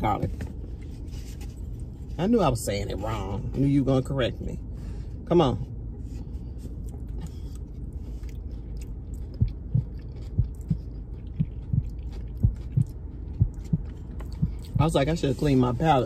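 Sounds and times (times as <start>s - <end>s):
steady low hum: 0.0s - 16.0s
person chewing food: 6.2s - 14.8s.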